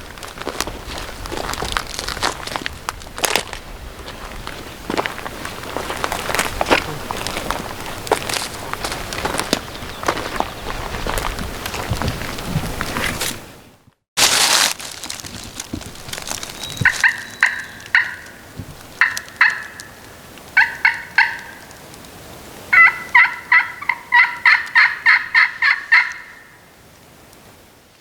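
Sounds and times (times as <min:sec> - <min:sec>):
rustling: 0:00.0 - 0:13.6, 0:14.2 - 0:19.4
turkey yelping: 0:16.6 - 0:20.0, 0:20.6 - 0:21.6, 0:22.7 - 0:26.6.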